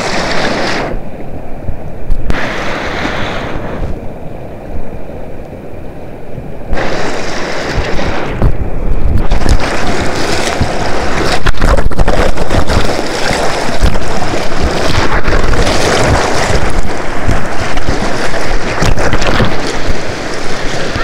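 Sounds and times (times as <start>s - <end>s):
wind buffeting microphone: 5.8s - 21.0s.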